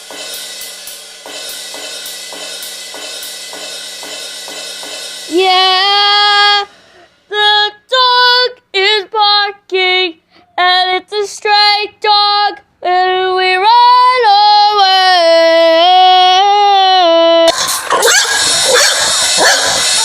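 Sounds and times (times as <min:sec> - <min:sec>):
high-pitched voice singing: 0:05.3 - 0:06.7, 0:07.3 - 0:20.0.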